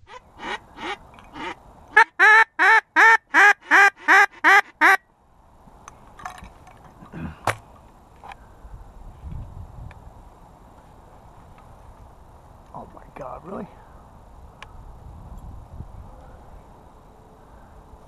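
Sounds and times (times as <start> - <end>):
duck quacking: 0.0 - 5.0.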